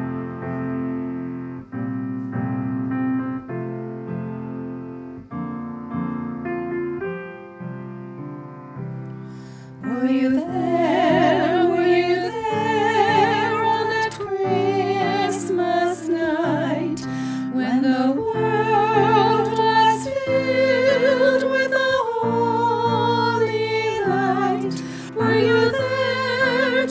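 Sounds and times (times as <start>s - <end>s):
piano accompaniment: 0.0s - 26.9s
women singing with vibrato: 9.8s - 26.9s.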